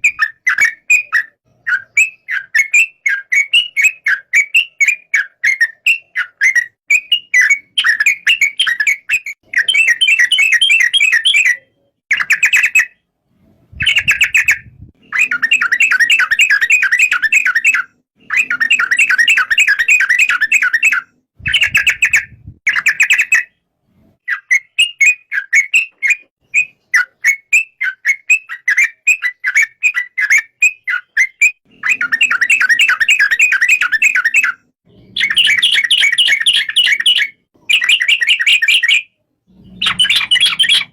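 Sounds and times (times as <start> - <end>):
bird singing bubbling chirps: 13.7 - 23.6, 24.2 - 40.9.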